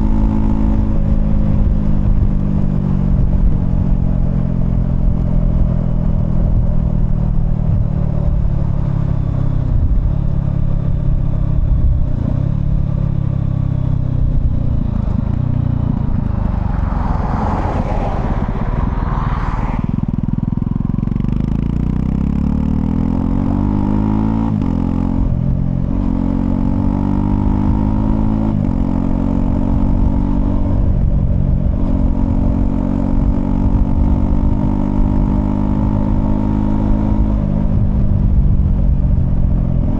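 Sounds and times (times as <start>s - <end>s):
motorcycle engine accelerating: 0.0s - 39.9s
whooshing rush: 14.7s - 20.6s.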